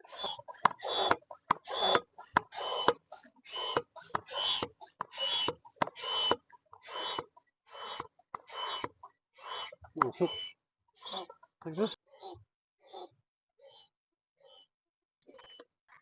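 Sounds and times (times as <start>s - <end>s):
manual air pump strokes: 0.0s - 11.9s.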